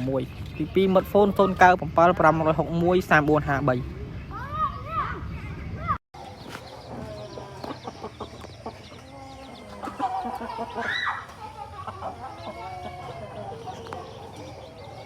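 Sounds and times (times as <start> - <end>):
chickens clucking: 6.2 - 15.0.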